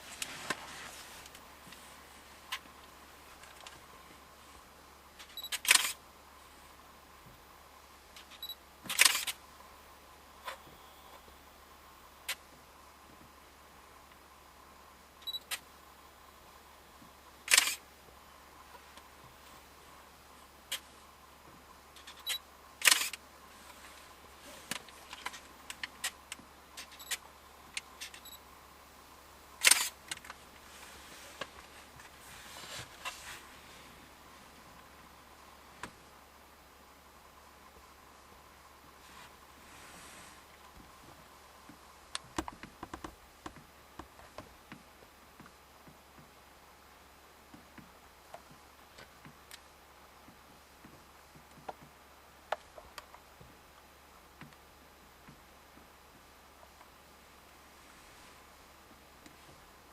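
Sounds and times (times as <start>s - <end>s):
faint steady hiss: 0.0s - 59.9s
sharp mechanical clicks: 5.2s - 6.0s, 8.2s - 9.4s, 17.5s - 17.8s, 22.0s - 23.2s, 29.6s - 30.4s.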